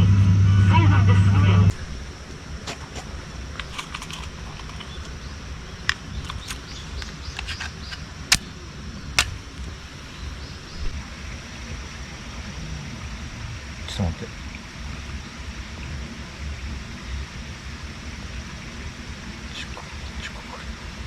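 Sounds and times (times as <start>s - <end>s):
faint high hiss: 1.7s - 21.0s
sharp clicks and snaps: 2.7s - 5.2s, 5.8s - 8.5s, 9.2s - 9.8s.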